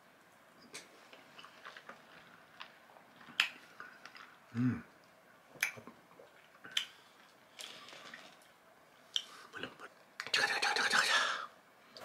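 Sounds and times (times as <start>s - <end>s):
wet mouth clicks and smacks: 3.3s - 3.6s, 6.7s - 7.0s.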